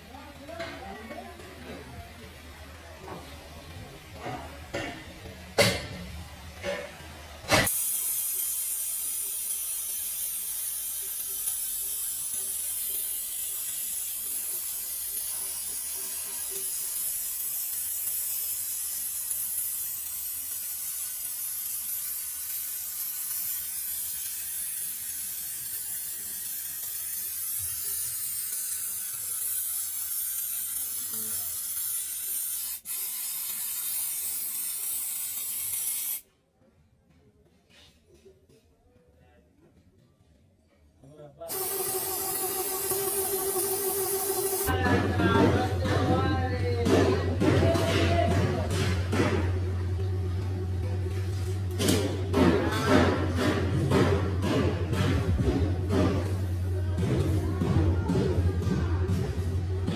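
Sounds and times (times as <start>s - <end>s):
compressed air hissing: 7.5s - 36.2s, 41.5s - 44.8s.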